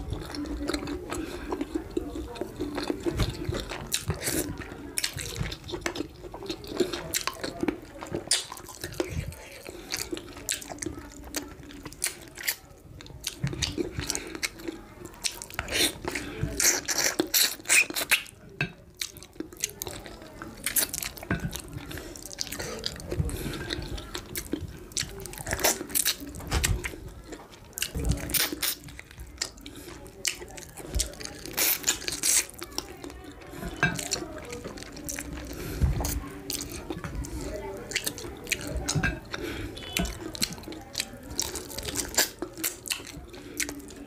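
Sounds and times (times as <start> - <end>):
person chewing food: 0.0 - 44.0.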